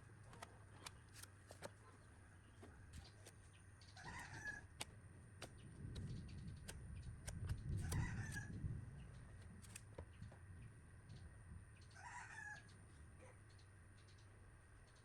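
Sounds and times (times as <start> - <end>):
rooster crowing: 4.0 - 4.6, 7.8 - 8.6, 12.0 - 12.7.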